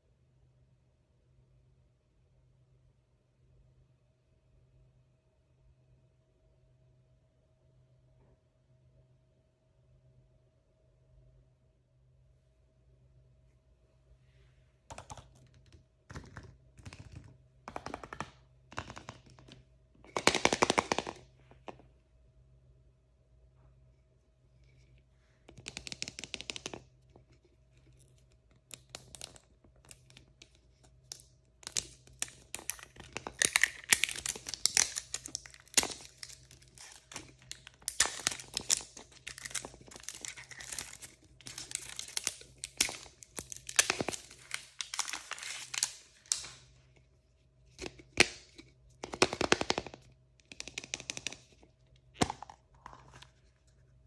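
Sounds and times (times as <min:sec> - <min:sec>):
packaging crinkling and tearing: 0:27.9 - 0:46.6.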